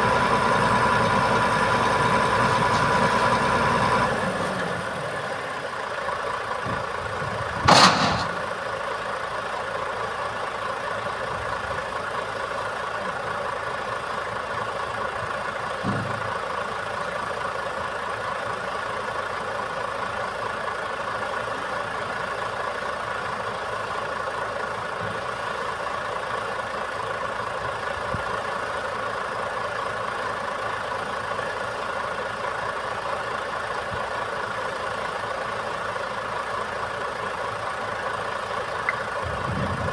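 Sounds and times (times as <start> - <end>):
truck engine running: 0.0 - 39.9
loud knock: 7.7 - 8.5.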